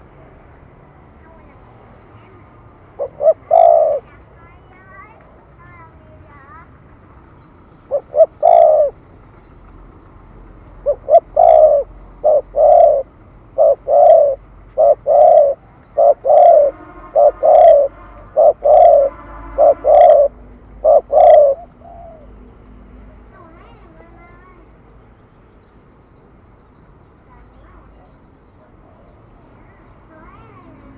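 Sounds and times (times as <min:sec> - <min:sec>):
dove cooing: 0:02.3 - 0:06.4, 0:07.8 - 0:09.1, 0:10.6 - 0:22.4.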